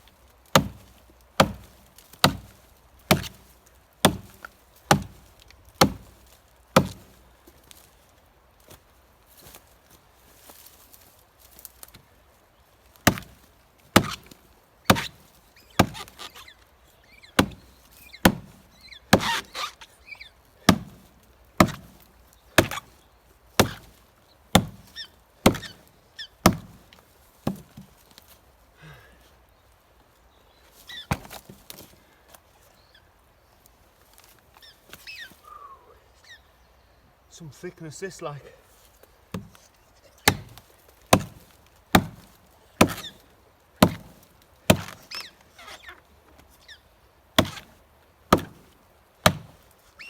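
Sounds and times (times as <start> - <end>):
axe chopping firewood: 0.5 - 7.2, 13.0 - 16.5, 17.3 - 19.7, 20.6 - 23.0, 23.6 - 28.0, 31.1 - 32.0, 39.3 - 39.6, 40.2 - 45.9, 47.4 - 49.7.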